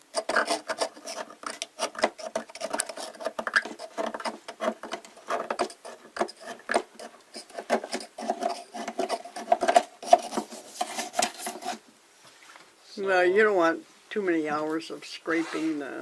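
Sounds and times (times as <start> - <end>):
scrubbing and scraping scale: 0.0 - 11.8.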